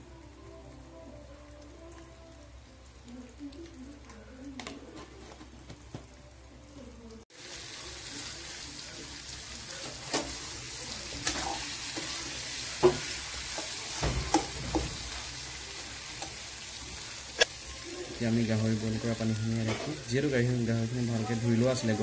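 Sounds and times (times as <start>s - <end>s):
meat sizzling in gravy: 7.2s - 22.0s.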